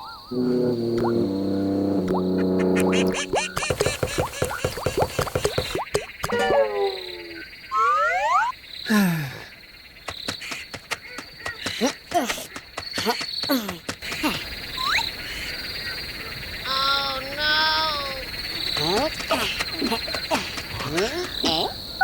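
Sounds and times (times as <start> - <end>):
sliding whistle-like tones: 0.0 - 8.5
steady high chirring: 0.3 - 4.9
warbling call: 0.3 - 8.5.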